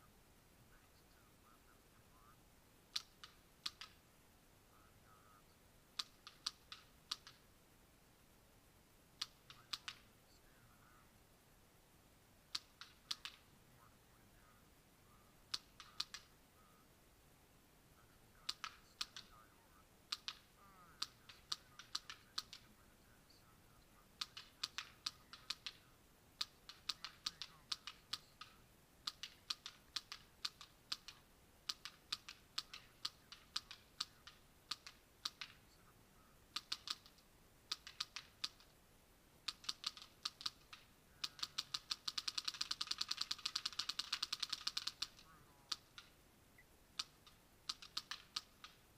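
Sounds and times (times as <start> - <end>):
paintball marker firing: 2.9 - 4.0, 6.0 - 7.4, 9.2 - 10.1, 12.5 - 13.5, 15.5 - 16.3, 18.4 - 19.4, 20.1 - 22.7, 24.2 - 35.6, 36.5 - 38.7, 39.4 - 46.2, 47.0 - 48.9.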